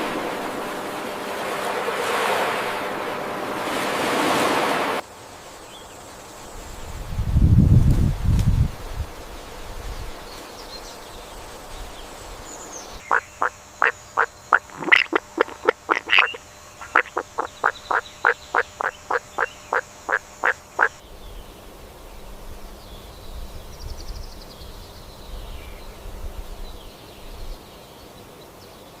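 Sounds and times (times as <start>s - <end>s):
faint high chirps: 13.0s - 20.9s
short animal calls: 13.0s - 21.0s.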